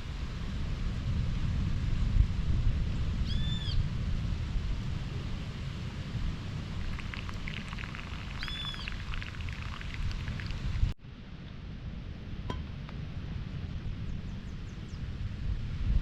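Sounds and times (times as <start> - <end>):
wind buffeting microphone: 0.0 - 11.0, 12.4 - 16.0
bird calls: 8.1 - 9.4.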